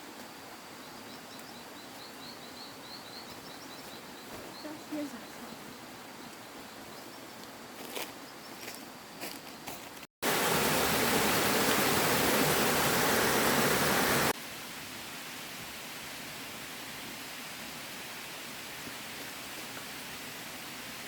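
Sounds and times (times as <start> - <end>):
steady hiss: 10.2 - 21.0.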